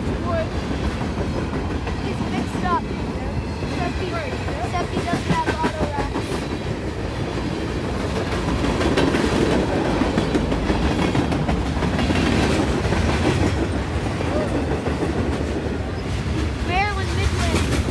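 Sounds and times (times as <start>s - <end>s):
freight train rumble: 0.0s - 17.9s
wheels clicking over rail joints: 0.0s - 17.9s.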